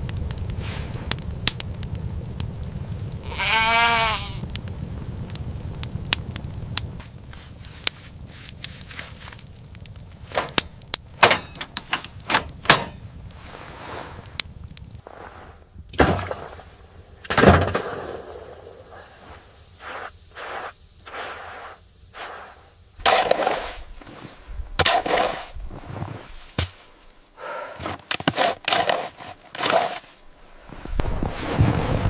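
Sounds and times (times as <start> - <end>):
rough scraping and rustling: 7.0 - 10.6, 11.2 - 32.0.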